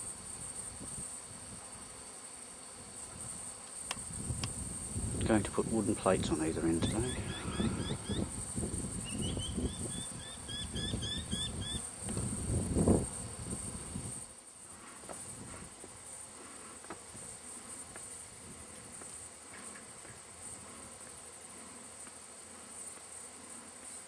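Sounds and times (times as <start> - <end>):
insect trill: 0.0 - 24.0
bird chirps: 6.8 - 8.3.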